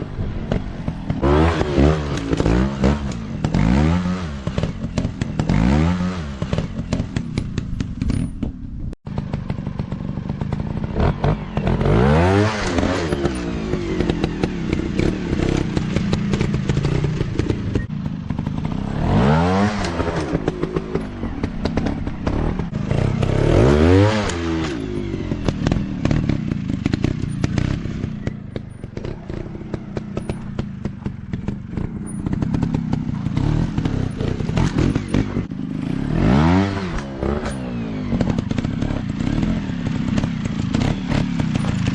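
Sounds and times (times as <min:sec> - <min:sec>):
dirt bike engines revving: 0:00.0 - 0:08.0, 0:09.2 - 0:41.9
rattling and clatter: 0:24.4 - 0:35.9, 0:36.9 - 0:41.9.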